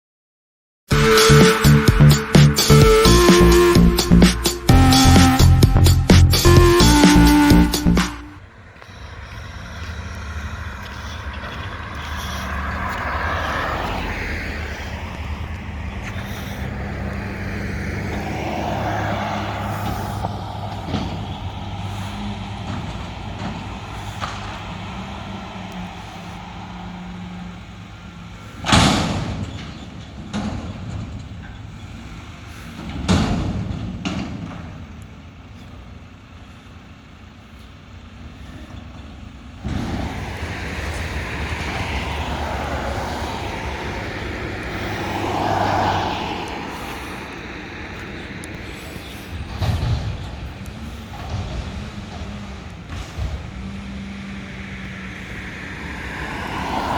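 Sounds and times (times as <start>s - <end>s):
garbage truck diesel engine: 0.9s - 56.9s
air brake hiss: 16.0s - 17.6s, 18.2s - 27.6s.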